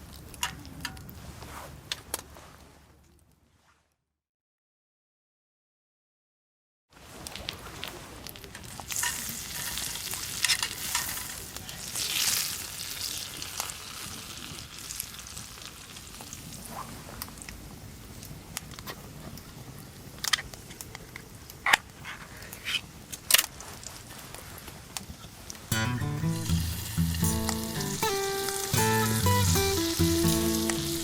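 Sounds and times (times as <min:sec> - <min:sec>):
food sizzling in a pan: 0:08.9 - 0:16.4, 0:25.7 - 0:31.0.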